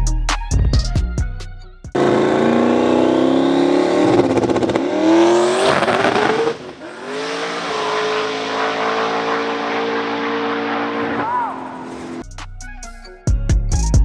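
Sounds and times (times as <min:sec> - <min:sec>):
race car engine accelerating: 0:02.0 - 0:12.2.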